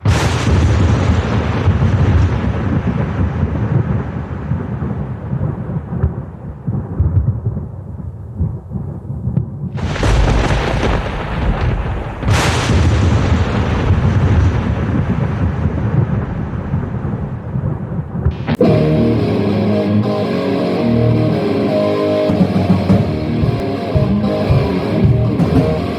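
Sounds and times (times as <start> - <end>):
loud thunder cracks: 0.0 - 6.2, 9.8 - 17.7
thunder rumbling: 0.0 - 25.9.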